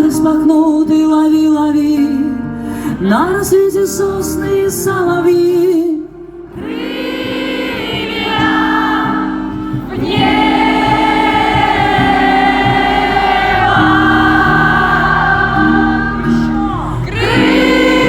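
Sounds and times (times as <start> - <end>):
choir-like voices: 6.5 - 18.0.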